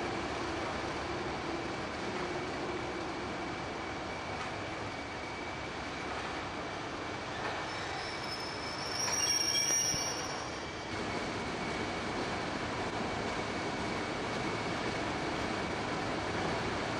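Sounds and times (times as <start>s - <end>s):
train wheels squealing: 3.8s - 12.1s.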